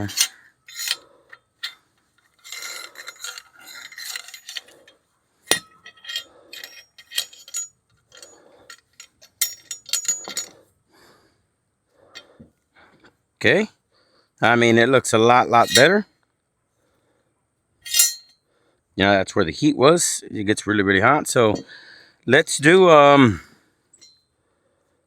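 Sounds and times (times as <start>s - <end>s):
light metallic clinks: 0.0s - 10.6s, 17.8s - 18.4s, 23.9s - 24.3s.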